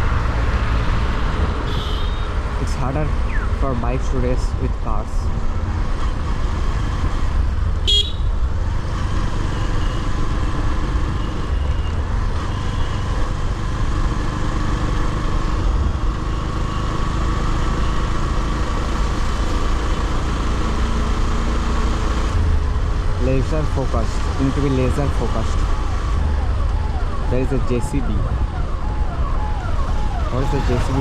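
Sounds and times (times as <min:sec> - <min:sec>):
road noise: 0:00.0 - 0:31.0
short high vehicle horn toot: 0:01.7 - 0:02.3, 0:07.9 - 0:08.3.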